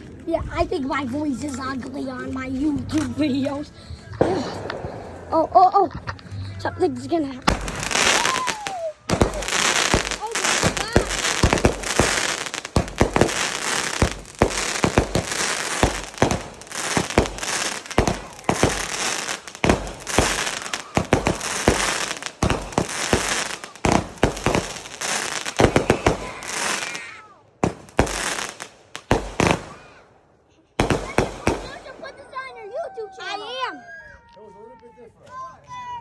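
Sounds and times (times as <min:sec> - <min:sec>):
fireworks bangs: 0:02.3 - 0:06.2, 0:07.4 - 0:30.1, 0:30.8 - 0:32.8
fireworks crackling hiss: 0:02.4 - 0:05.8, 0:07.5 - 0:30.0, 0:30.8 - 0:32.1.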